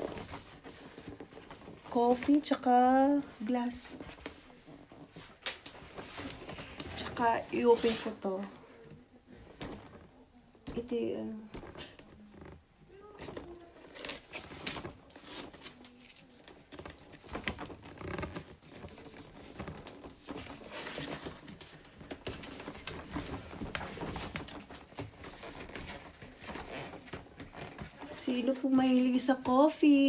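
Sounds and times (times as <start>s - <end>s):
cardboard box being opened: 13.1s - 28.2s.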